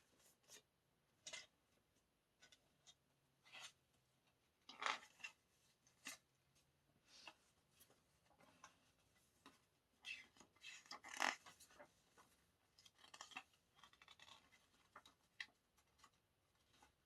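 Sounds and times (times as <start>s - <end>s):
rustling of album packaging: 7.1s - 17.0s.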